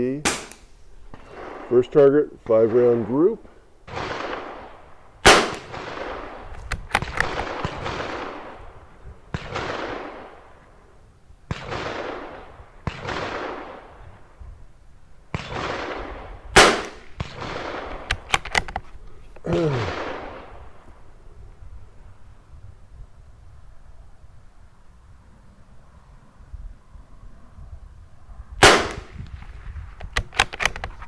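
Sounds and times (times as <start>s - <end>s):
rifle shot crack: 0.0s - 10.9s, 11.5s - 14.2s, 15.3s - 21.1s, 28.6s - 31.0s
distant echoing gunshots: 0.0s - 14.5s, 15.3s - 21.2s, 28.6s - 30.8s
rifle bolt clicking: 0.3s - 1.1s, 5.3s - 5.7s, 6.5s - 7.8s, 18.0s - 19.0s, 30.0s - 31.0s.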